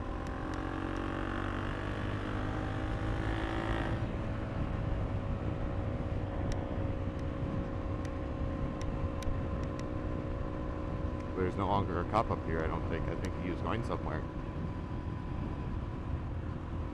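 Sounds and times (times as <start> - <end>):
motorcycle engine running: 0.0 - 16.9
wind rumble on microphone: 3.9 - 16.9.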